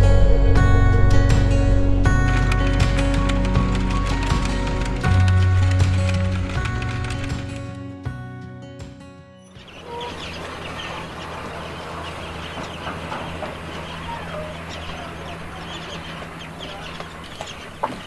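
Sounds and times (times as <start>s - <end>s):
steady low hum: 0.0s - 7.3s
chickens clucking: 9.6s - 18.0s.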